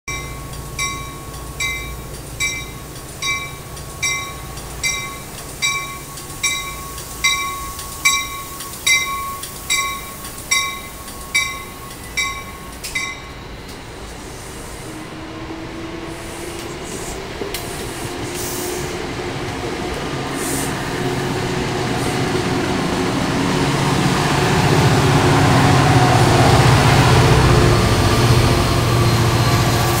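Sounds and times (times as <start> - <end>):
train bell ringing: 0.1 - 14.2
diesel locomotive engine: 0.1 - 30.0
train wheels rumbling: 0.1 - 30.0.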